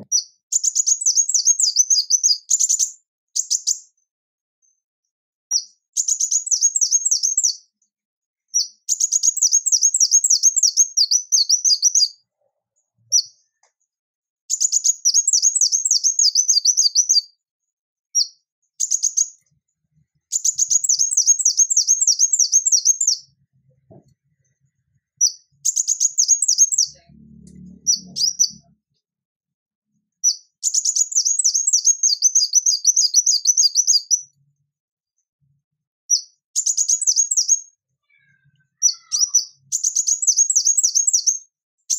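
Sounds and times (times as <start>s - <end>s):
bird singing high thin phrases: 0.0s - 4.0s, 5.5s - 7.7s, 8.5s - 12.2s, 14.5s - 17.4s, 18.2s - 19.4s, 20.3s - 23.4s, 25.1s - 28.8s, 30.2s - 34.4s, 36.1s - 41.9s.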